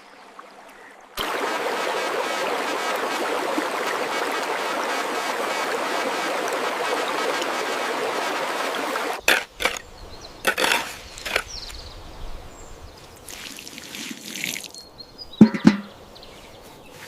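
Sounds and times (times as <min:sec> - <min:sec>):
stream water rushing: 0:00.0 - 0:12.0, 0:12.7 - 0:16.2
rustling or knocking: 0:15.4 - 0:16.0.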